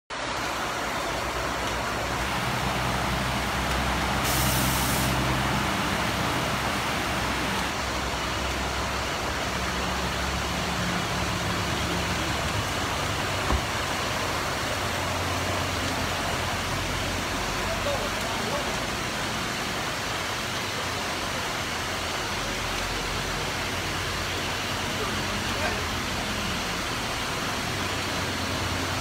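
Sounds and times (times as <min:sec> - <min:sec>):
heavy rain pouring: 0:00.1 - 0:29.0
tyres spraying through water: 0:00.1 - 0:29.0
truck engine running: 0:01.1 - 0:16.1
short hiss: 0:04.2 - 0:05.4
thump: 0:13.4 - 0:13.8.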